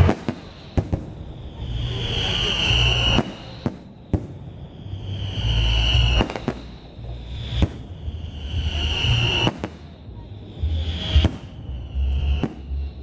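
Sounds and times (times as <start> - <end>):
firework shells bursting: 0.0 - 1.2, 5.4 - 8.3
firework whistles: 0.0 - 13.0
low rumble: 0.0 - 13.0.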